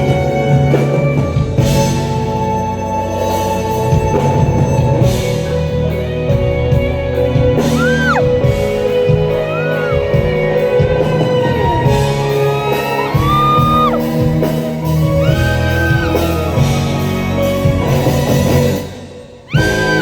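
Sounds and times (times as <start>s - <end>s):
live band music in a hall: 0.0s - 20.0s
vocal whoops: 7.7s - 8.3s, 9.5s - 10.1s, 12.6s - 14.0s, 15.2s - 16.6s, 19.5s - 20.0s.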